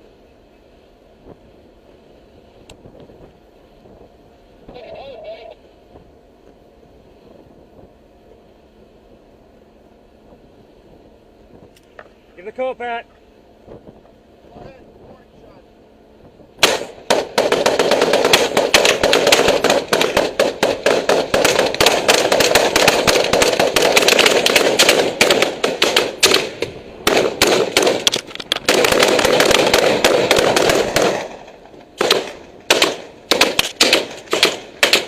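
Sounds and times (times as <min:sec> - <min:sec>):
machine guns firing bursts: 0:16.6 - 0:35.0.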